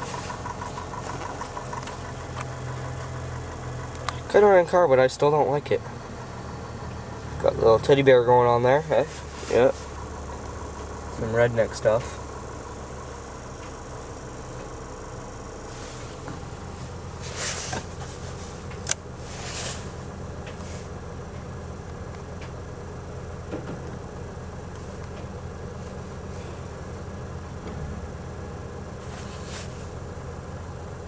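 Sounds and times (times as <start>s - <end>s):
car engine idling: 0.0s - 31.0s
short hissing noises: 19.2s - 20.0s, 29.0s - 30.0s.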